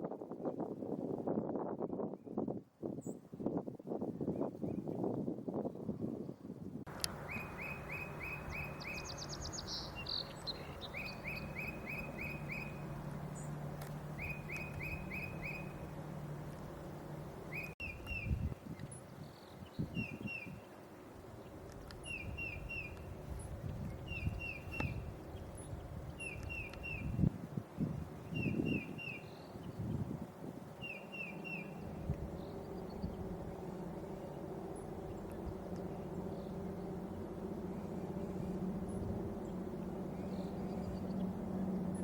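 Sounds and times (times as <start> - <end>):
low steady hum: 6.8 - 42.0
faint high bird calls: 6.9 - 16.0, 17.5 - 20.7
bird whistling song: 7.0 - 13.5, 14.1 - 15.9, 17.5 - 18.5, 19.2 - 20.6, 22.0 - 23.1, 24.0 - 27.3, 28.2 - 30.0, 30.8 - 33.1.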